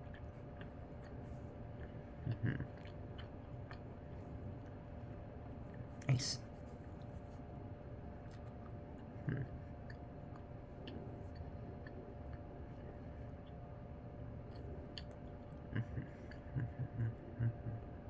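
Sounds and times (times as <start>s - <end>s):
faint chewing: 0.0s - 18.0s
low background hum: 0.0s - 18.0s
wet mouth clicks: 14.5s - 15.5s.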